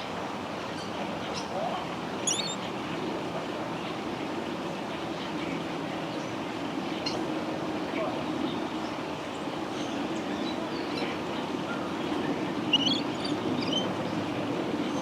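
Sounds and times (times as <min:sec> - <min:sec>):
low rumbling background noise: 0:00.0 - 0:15.0
high bird chirps: 0:02.3 - 0:02.6.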